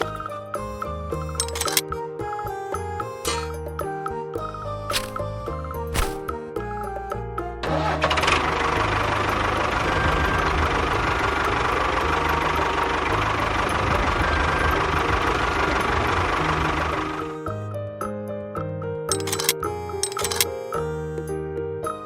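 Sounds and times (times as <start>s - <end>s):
music: 0.0s - 22.0s.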